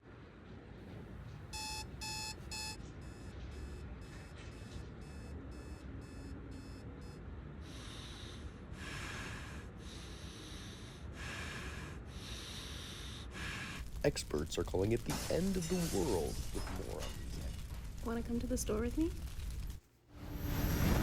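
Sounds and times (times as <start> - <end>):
alarm clock beeping: 1.5 - 7.2
bursts of hiss-like noise: 12.5 - 21.0.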